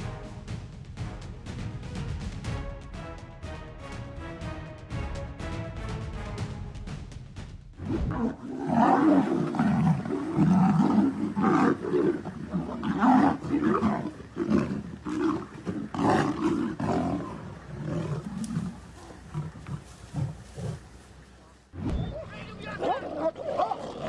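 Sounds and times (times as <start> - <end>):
music: 0.0 - 8.2
large animals growling and roaring: 7.8 - 21.0, 21.8 - 24.0.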